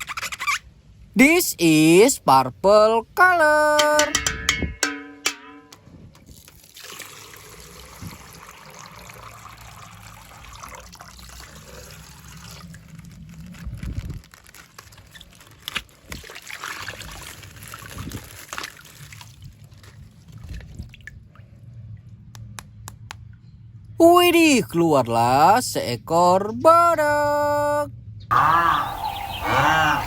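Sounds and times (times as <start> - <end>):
water trickling from plastic bag: 6.2 - 21.4.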